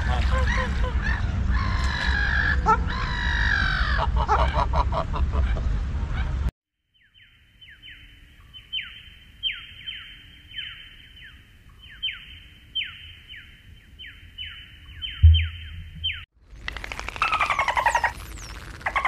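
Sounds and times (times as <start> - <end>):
bird chirping: 6.9 - 16.3, 17.2 - 19.0.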